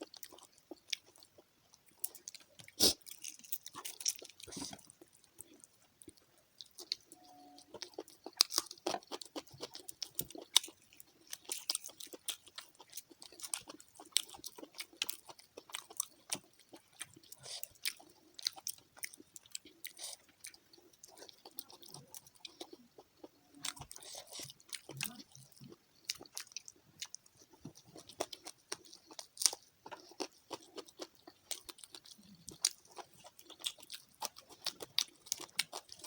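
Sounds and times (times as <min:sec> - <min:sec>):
person chewing crunchy food: 0:00.0 - 0:36.0.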